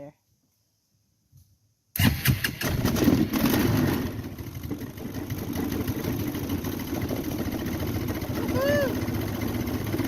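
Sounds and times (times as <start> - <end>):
atv engine revving and idling: 2.0 - 10.0
starter cranking engine: 2.0 - 10.0.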